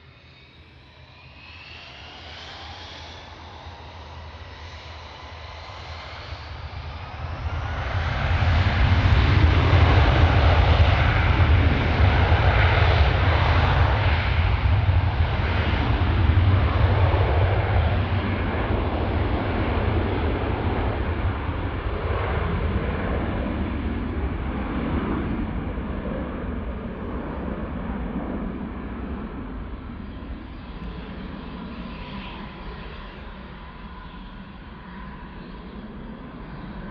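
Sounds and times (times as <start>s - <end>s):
jet airliner taking off: 0.0s - 36.9s.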